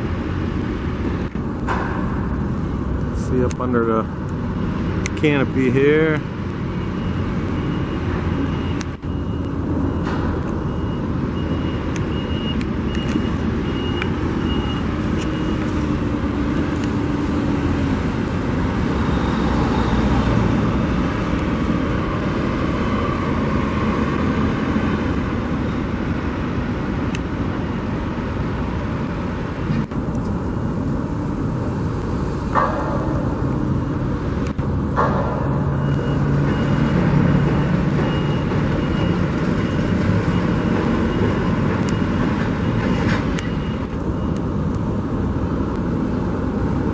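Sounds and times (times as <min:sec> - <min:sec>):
heavy trucks running: 0:00.0 - 0:46.9
high reversing beep: 0:06.7 - 0:16.1, 0:18.7 - 0:21.2, 0:30.2 - 0:34.0, 0:35.0 - 0:46.9.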